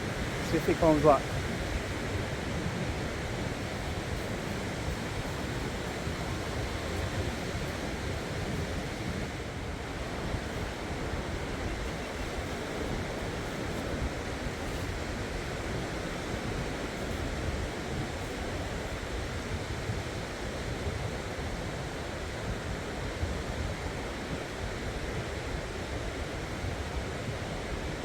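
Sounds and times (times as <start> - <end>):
sea surf washing: 0.0 - 21.5
wind buffeting microphone: 0.0 - 28.0.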